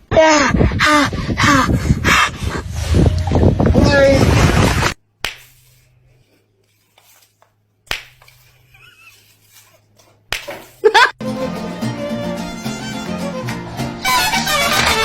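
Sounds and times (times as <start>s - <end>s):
sharp smacks: 5.2s - 5.6s, 7.9s - 8.3s.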